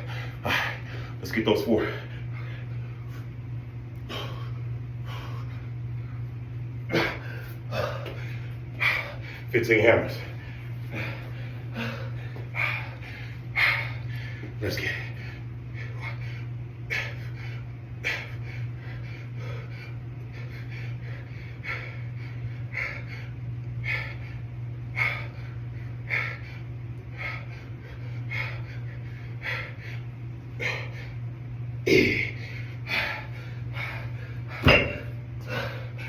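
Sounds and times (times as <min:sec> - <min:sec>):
steady low hum: 0:00.0 - 0:36.0
man breathing out hard: 0:10.8 - 0:14.5.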